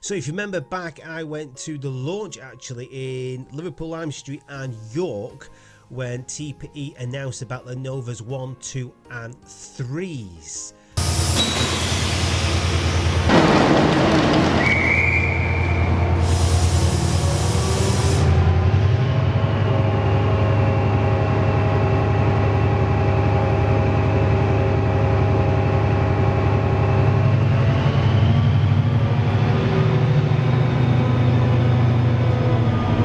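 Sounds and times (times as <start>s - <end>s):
air hissing: 11.0s - 18.6s
train power unit running: 11.0s - 33.0s.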